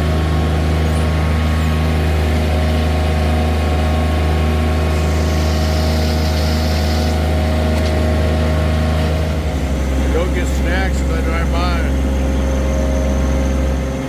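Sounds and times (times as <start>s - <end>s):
tractor diesel engine running: 0.0s - 14.0s
hiss: 5.0s - 7.2s.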